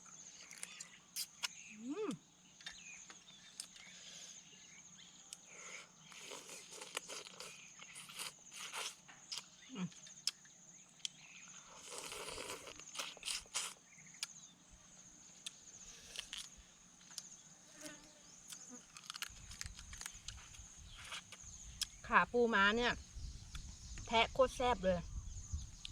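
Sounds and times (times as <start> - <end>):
crab shell cracking while chewed: 6.1 - 9.6, 11.9 - 14.4, 18.5 - 22.0.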